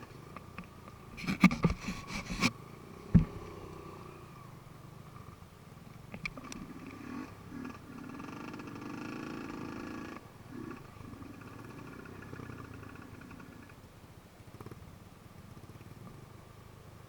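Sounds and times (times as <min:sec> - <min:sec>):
dirt bike engine running: 0:03.0 - 0:04.0.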